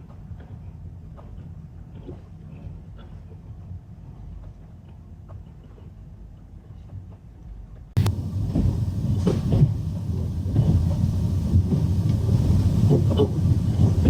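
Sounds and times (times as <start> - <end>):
passenger train running: 8.0 - 14.0.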